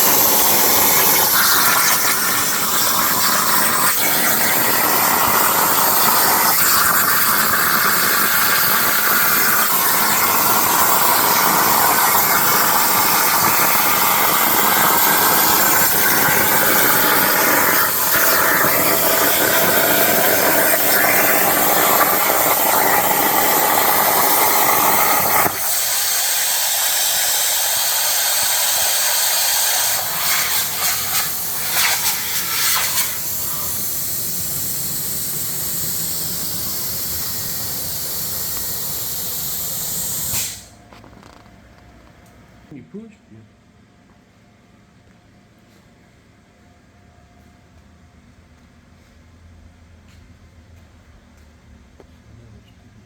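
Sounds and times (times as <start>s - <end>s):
plasma cutter hissing: 0.0s - 40.8s.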